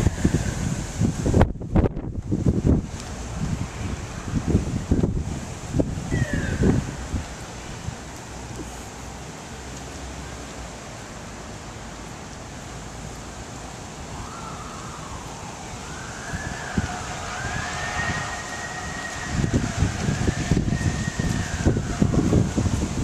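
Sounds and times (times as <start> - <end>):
emergency vehicle siren: 0.0 - 0.9, 3.4 - 8.1, 13.6 - 23.0
hurricane wind rushing: 0.0 - 23.0.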